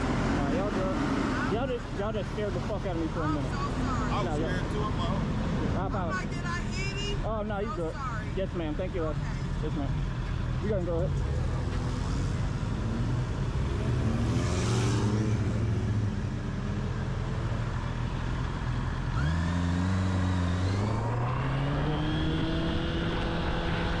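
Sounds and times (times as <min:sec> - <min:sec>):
engine accelerating: 0:19.0 - 0:24.0.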